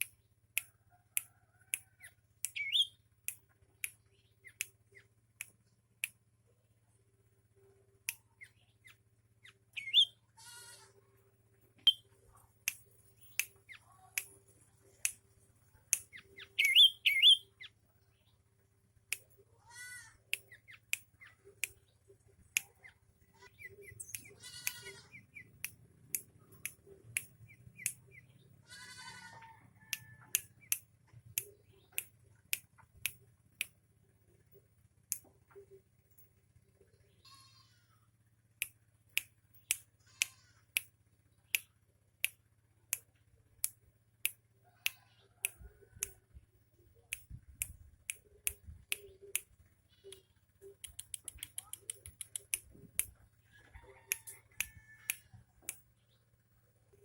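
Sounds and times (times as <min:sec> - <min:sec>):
faint low hum: 0:00.0 - 0:57.0
bird calls: 0:02.0 - 0:03.0, 0:08.4 - 0:10.2, 0:16.0 - 0:18.3
sharp clicks: 0:38.6 - 0:40.9, 0:41.5 - 0:46.2, 0:47.1 - 0:53.2.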